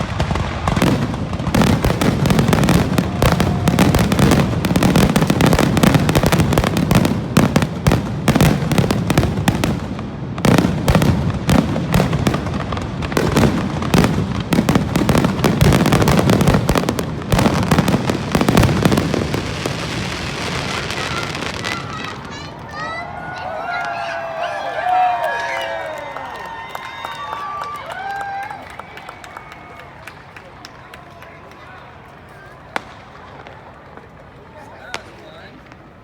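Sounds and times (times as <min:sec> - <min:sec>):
fireworks booming and crackling: 0:00.0 - 0:22.9, 0:32.6 - 0:36.0.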